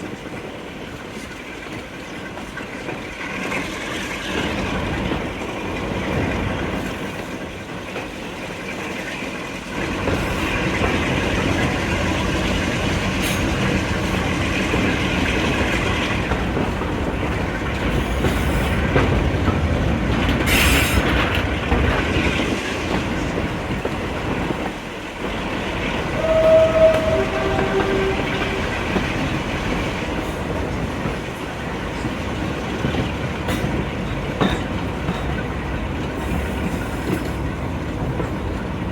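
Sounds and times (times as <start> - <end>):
train wheels clattering on rails: 0.0 - 38.9
train horn two notes: 26.0 - 29.5.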